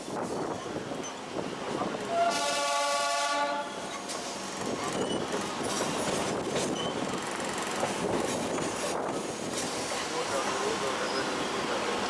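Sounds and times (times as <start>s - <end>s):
train horn blast: 2.1s - 3.9s
train clattering on rails: 3.7s - 12.0s
wheel squeals: 4.8s - 7.1s.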